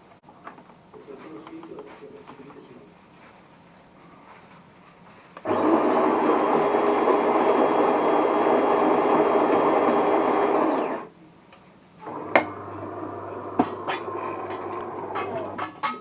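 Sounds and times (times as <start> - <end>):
coffee grinder motor whine: 5.4 - 11.1, 12.0 - 15.6
espresso machine hum: 5.5 - 11.1, 12.0 - 15.6.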